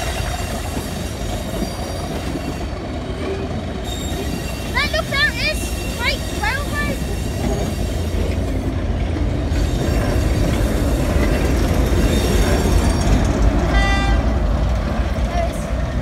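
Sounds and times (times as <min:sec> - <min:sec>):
diesel locomotive passing: 0:00.0 - 0:16.0
train wheels rumbling on rails: 0:00.0 - 0:16.0
high-pitched wheel squeal: 0:00.2 - 0:08.6.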